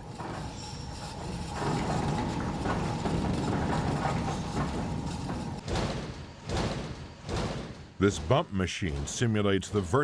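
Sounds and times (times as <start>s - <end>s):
heavy thumps: 1.6s - 8.3s.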